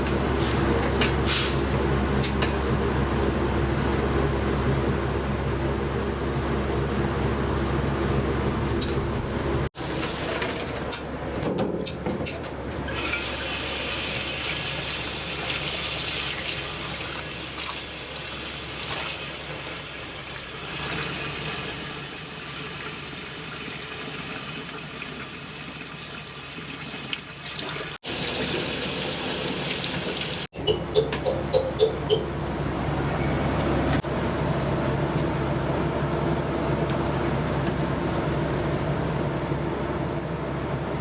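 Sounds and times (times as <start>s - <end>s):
tap water running into a sink: 13.0s - 30.5s.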